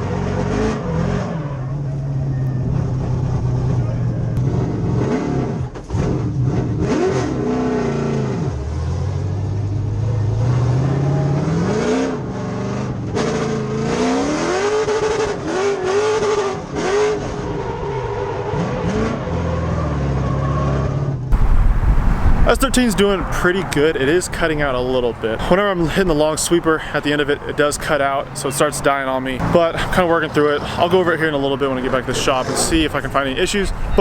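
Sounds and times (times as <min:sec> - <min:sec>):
car engine revving: 0:00.0 - 0:26.1.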